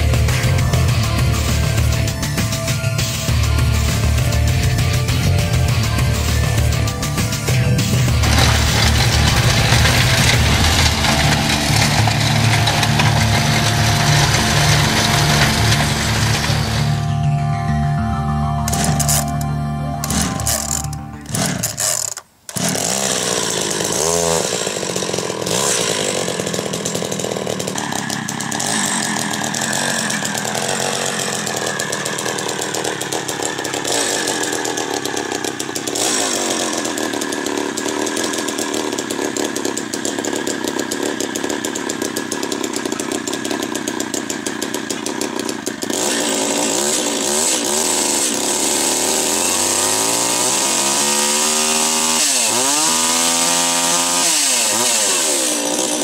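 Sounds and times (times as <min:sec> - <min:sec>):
small petrol engine revving: 0:00.0 - 0:17.4, 0:18.6 - 0:56.0.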